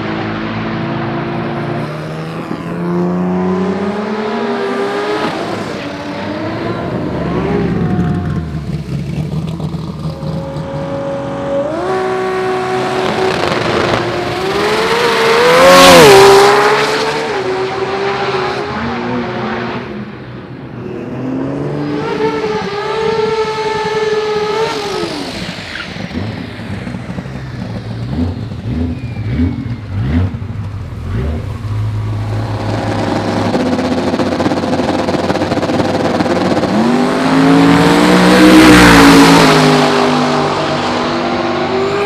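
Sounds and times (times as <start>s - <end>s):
racing car engine revving: 0.0s - 42.0s
second engine at high revs: 0.0s - 42.0s
lumpy engine idle with rev blips: 5.8s - 11.1s, 25.6s - 35.0s.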